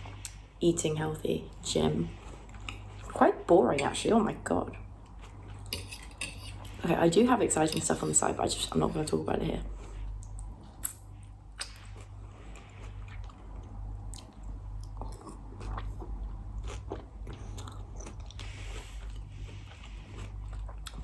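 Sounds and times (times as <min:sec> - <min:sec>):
chewing and biting salad: 0:04.8 - 0:06.8, 0:09.6 - 0:21.0
wet mouth clicks: 0:11.6 - 0:11.9.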